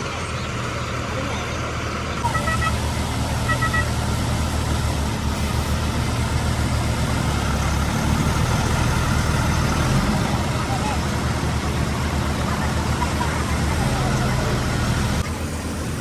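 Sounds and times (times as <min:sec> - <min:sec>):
truck engine idling: 0:00.0 - 0:16.0
two-tone beep: 0:02.2 - 0:02.8, 0:03.5 - 0:03.9.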